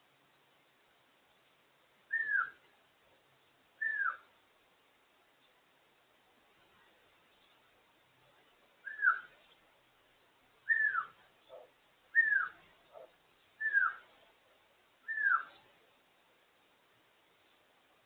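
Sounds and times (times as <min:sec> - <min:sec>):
parrot whistling: 0:02.1 - 0:02.5, 0:10.7 - 0:11.1, 0:15.1 - 0:15.5.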